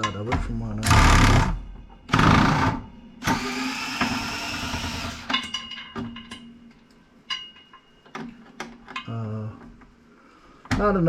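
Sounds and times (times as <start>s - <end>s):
small electric tool motor: 2.2s - 5.3s
light metallic clinks and taps: 5.4s - 9.2s.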